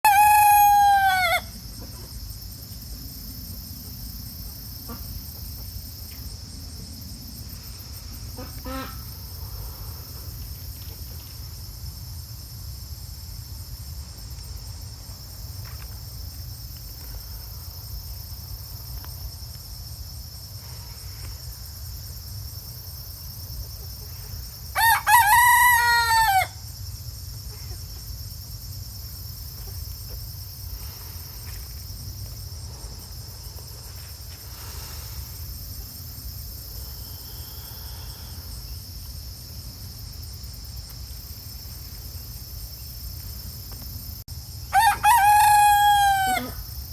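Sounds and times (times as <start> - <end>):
rooster crowing: 0.0 - 1.6, 24.8 - 26.6, 44.7 - 46.6.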